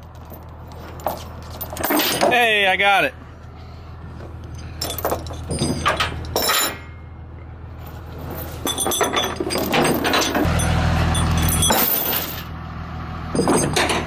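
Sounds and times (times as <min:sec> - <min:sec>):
metallic clinking and rattling: 0:00.0 - 0:02.5, 0:04.4 - 0:07.0, 0:07.8 - 0:12.5, 0:13.3 - 0:14.0
diesel engine idling: 0:10.0 - 0:14.0.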